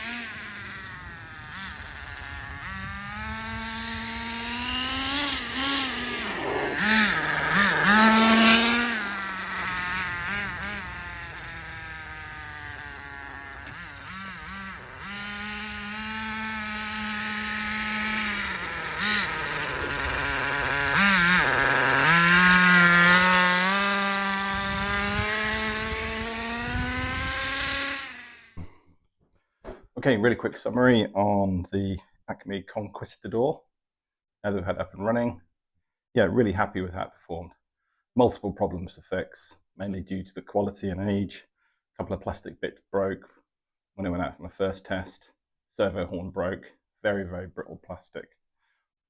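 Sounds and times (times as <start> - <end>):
small engine revving: 0.0 - 28.8.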